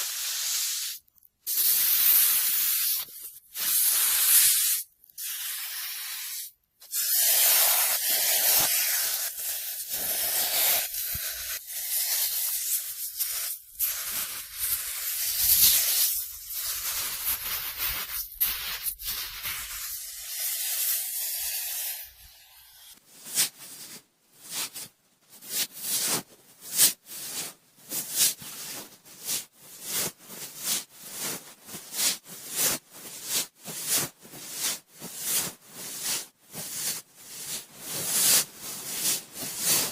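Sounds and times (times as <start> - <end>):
cotton swab scratching microphone: 0.0 - 23.8.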